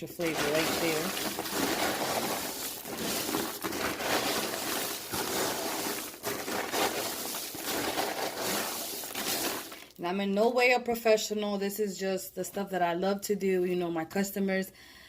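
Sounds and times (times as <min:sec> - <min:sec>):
popcorn rustling and crunching: 0:00.0 - 0:10.0.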